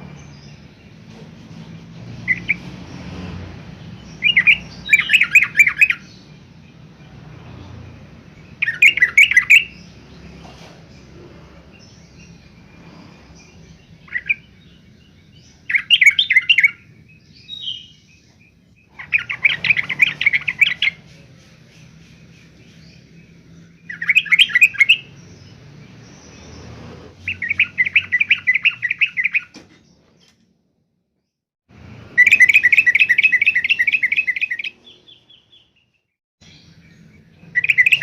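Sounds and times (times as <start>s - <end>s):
bird chattering song: 2.2s - 3.1s, 3.7s - 30.4s, 32.1s - 38.0s
bird call notes: 32.2s - 35.4s.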